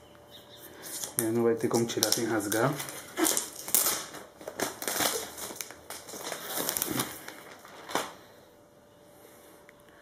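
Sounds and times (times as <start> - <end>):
plastic film crinkling: 0.8 - 8.4.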